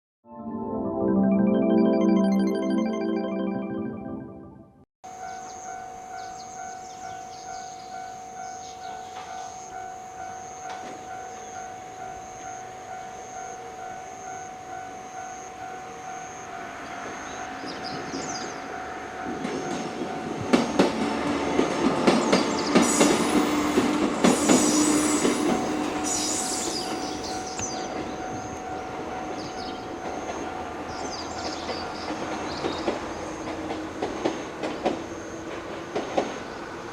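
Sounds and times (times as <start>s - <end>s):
level crossing warning bell: 5.1s - 20.6s, 25.2s - 32.1s
electric train passing: 5.1s - 36.9s.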